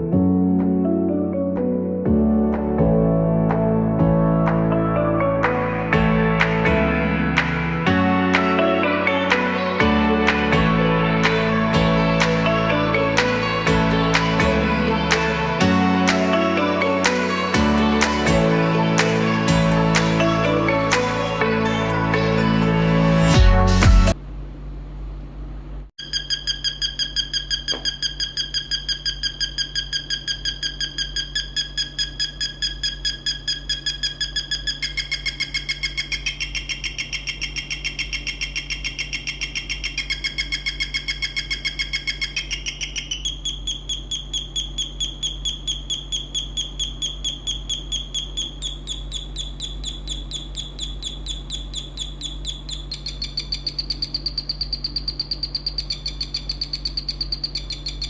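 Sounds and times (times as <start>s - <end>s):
low mains hum: 24.1s - 58.0s
electronic bird chirps: 26.0s - 58.0s.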